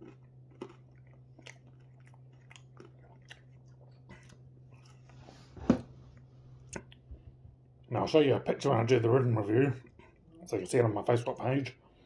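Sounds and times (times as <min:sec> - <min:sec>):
person chewing: 0:00.0 - 0:05.5, 0:06.1 - 0:07.1.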